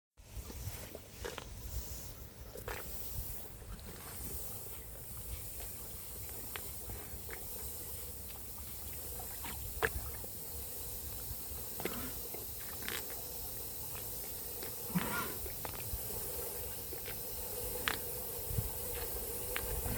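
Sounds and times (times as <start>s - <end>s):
wind rumble on microphone: 15.0s - 19.9s.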